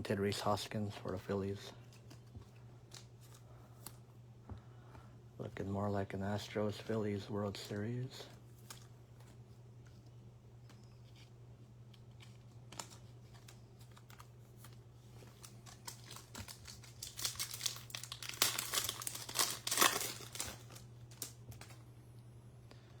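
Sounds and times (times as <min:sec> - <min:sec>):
cards clicking: 0:08.5 - 0:10.0, 0:11.9 - 0:21.8
foil wrapper tearing and crinkling: 0:12.1 - 0:14.6, 0:15.2 - 0:21.8.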